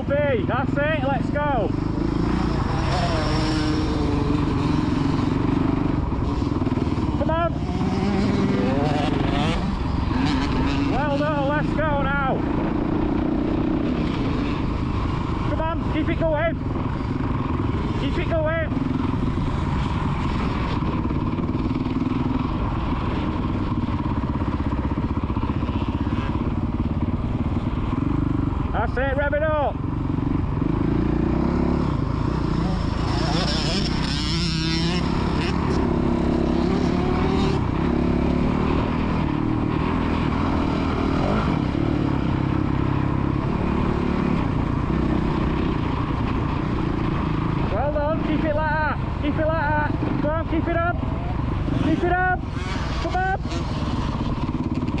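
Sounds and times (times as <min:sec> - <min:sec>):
dirt bike engine running: 0:00.0 - 0:55.0.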